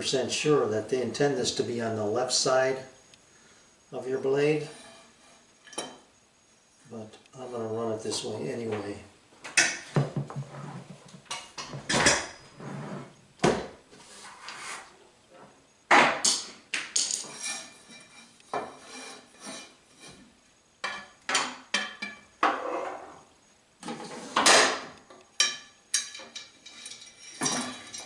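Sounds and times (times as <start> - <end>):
metal parts clinking and knocking: 25.4 - 28.0.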